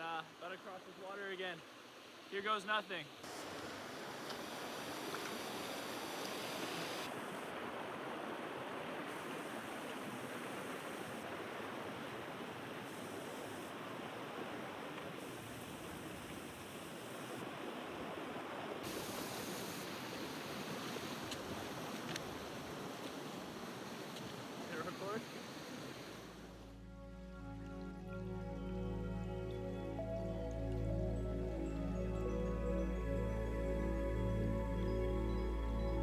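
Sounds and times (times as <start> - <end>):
water rushing over rocks: 0.6 - 26.6.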